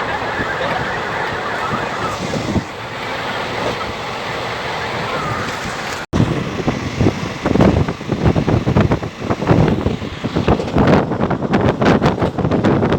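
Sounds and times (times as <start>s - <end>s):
moving train rushing: 0.0s - 12.9s
wind buffeting microphone: 0.0s - 12.9s
low thumps and clatter: 5.5s - 12.9s.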